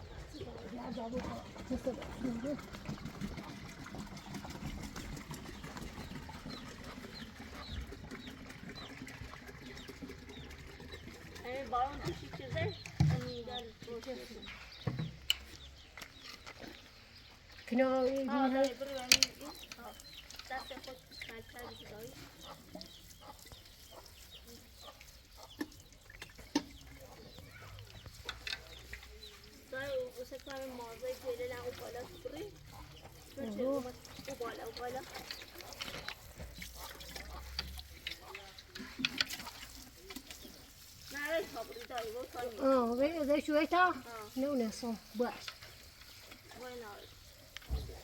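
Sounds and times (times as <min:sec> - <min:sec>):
small bird chirping: 0:09.7 - 0:48.0.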